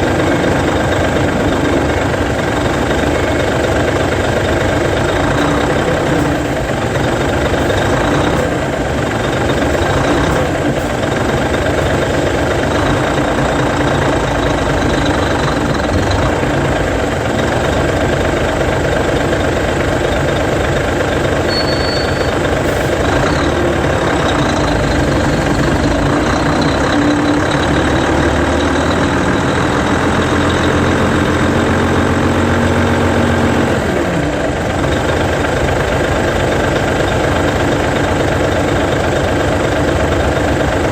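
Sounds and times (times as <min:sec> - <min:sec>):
brake squeal: 0:00.0 - 0:17.0, 0:21.2 - 0:34.4
diesel bus engine running: 0:00.0 - 0:40.9.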